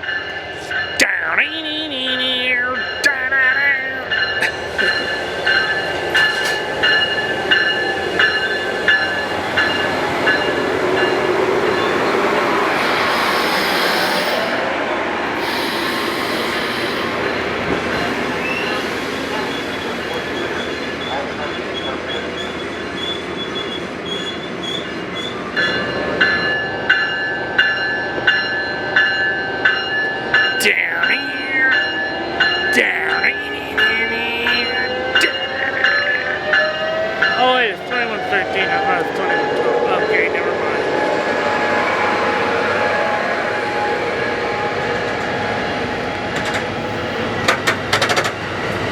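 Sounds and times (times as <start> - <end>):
railroad crossing bell ringing: 0.0 - 12.6, 16.7 - 47.4
passenger train rumbling: 0.0 - 48.9.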